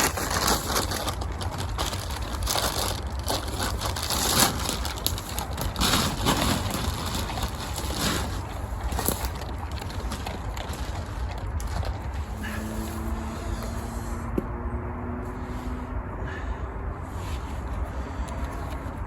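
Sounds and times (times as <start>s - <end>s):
irregular crunching and rustling: 0.0s - 14.4s.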